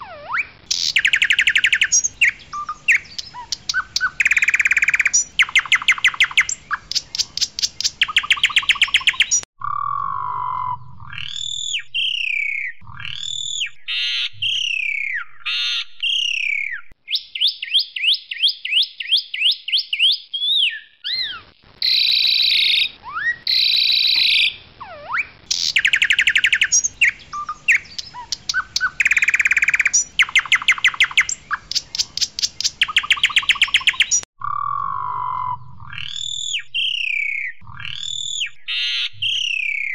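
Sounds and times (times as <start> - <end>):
starling singing: 0.0 - 9.5, 19.9 - 39.9.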